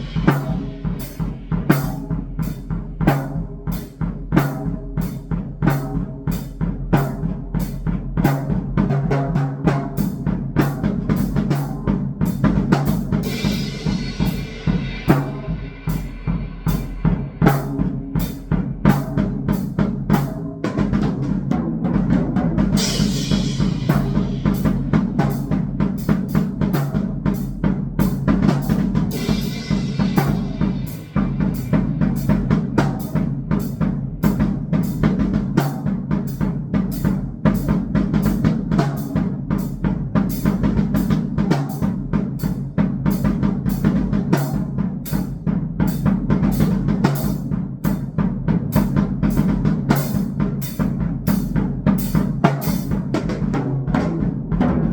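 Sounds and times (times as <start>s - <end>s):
cymbal washes: 0.0s - 2.6s, 12.9s - 18.6s, 28.6s - 35.0s
drum kit playing fast pattern: 0.0s - 54.9s.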